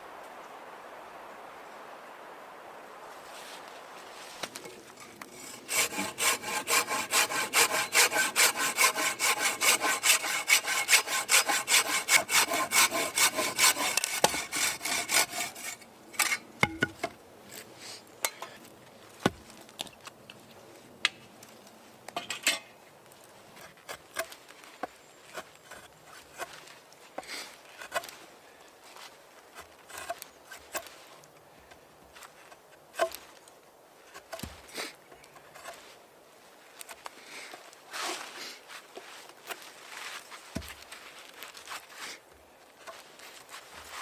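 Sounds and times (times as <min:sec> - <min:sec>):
hand saw cutting wood: 0:04.5 - 0:17.1.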